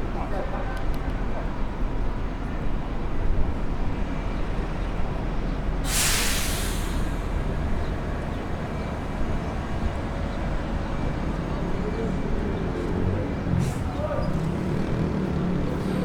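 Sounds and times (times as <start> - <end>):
city traffic rumble: 0.0 - 16.0
bus air brakes hissing: 5.8 - 8.0, 13.6 - 14.1.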